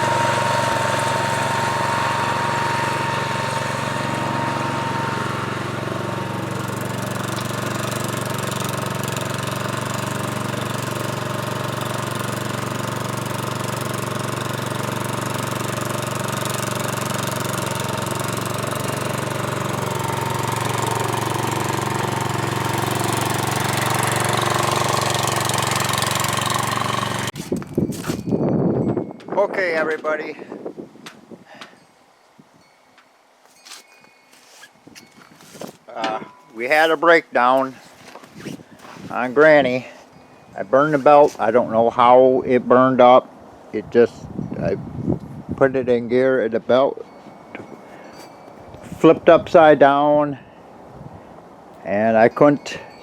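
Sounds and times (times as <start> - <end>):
garden tractor engine running: 0.0 - 28.4, 33.5 - 42.4, 46.9 - 50.6.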